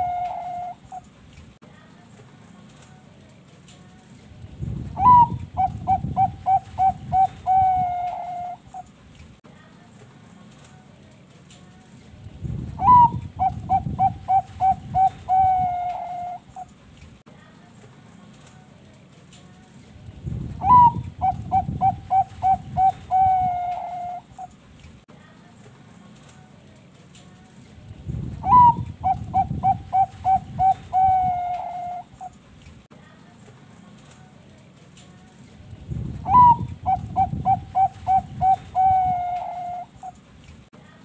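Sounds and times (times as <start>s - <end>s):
dove cooing: 0.0s - 1.1s, 5.0s - 8.9s, 12.8s - 16.7s, 20.6s - 24.6s, 28.4s - 32.4s, 36.2s - 40.2s.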